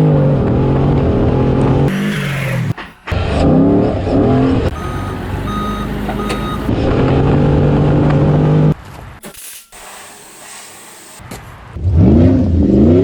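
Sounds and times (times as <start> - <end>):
car engine revving: 0.1 - 8.8
short electronic beeps: 4.7 - 6.7, 9.3 - 10.4.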